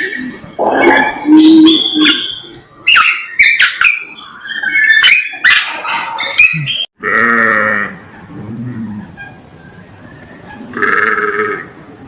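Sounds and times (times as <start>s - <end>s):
long drawn-out animal call: 10.5s - 11.8s.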